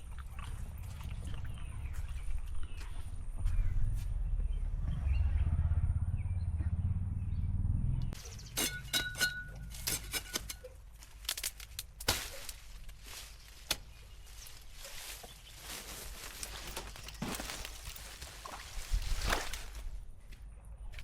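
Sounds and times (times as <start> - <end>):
loud low rumble: 0.4 - 8.2.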